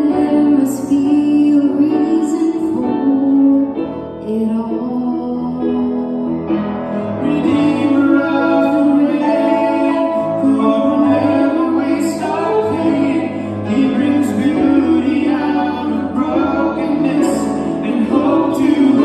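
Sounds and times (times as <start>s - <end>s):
hymn-style singing: 4.7s - 19.0s.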